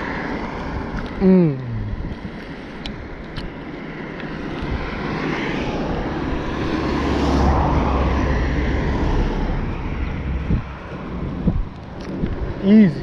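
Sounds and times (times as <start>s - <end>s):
vehicle passing by: 4.4s - 13.0s.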